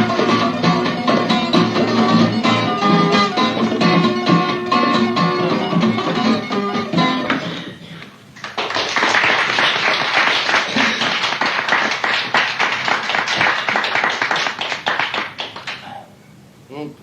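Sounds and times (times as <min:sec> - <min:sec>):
audience clapping: 0:08.4 - 0:16.0.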